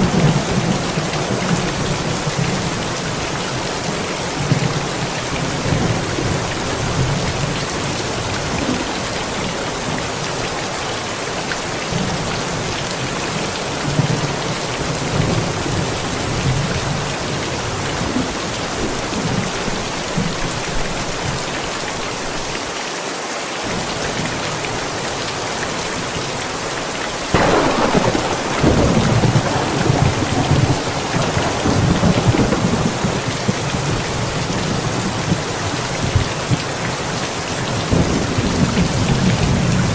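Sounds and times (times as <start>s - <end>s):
heavy rain: 0.0s - 39.9s
thunder rumbling: 27.3s - 39.9s.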